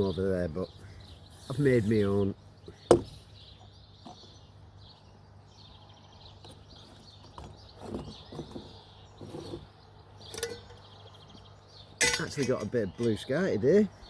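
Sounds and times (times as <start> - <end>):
birds chirping and singing: 0.0 - 14.0
faint outdoor hum: 0.0 - 14.0.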